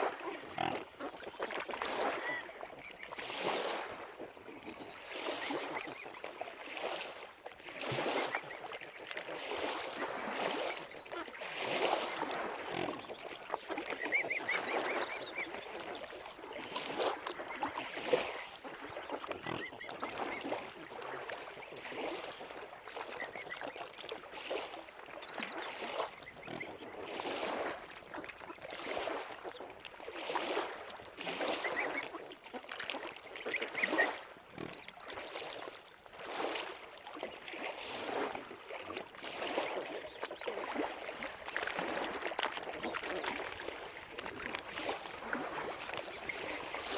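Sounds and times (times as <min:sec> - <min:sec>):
waterfowl calling: 0:10.4 - 0:16.1, 0:16.8 - 0:21.3, 0:30.4 - 0:32.2, 0:33.3 - 0:34.8.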